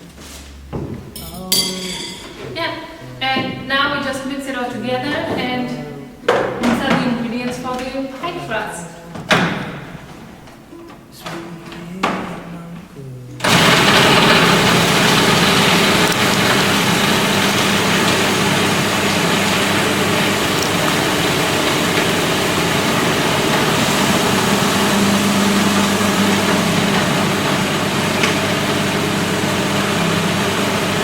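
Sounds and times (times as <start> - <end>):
food processor grinding: 13.4 - 31.0.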